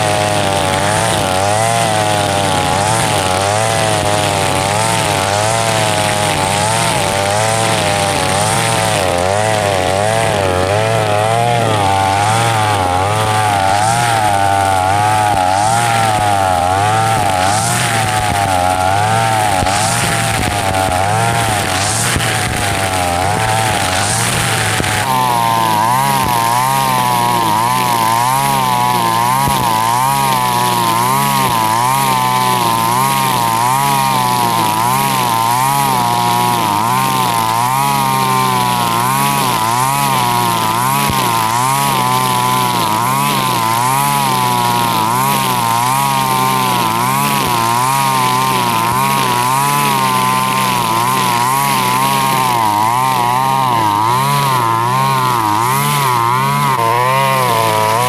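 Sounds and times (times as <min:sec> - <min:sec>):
brush cutter engine running: 0:00.0 - 0:58.0
trimmer line cutting grass: 0:00.0 - 0:58.0.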